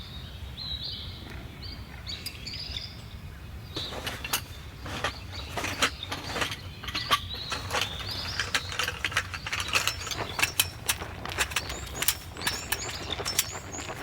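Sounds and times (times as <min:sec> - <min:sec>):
birds chirping: 0:00.2 - 0:14.0
sharp clicks and light knocks: 0:03.8 - 0:14.0.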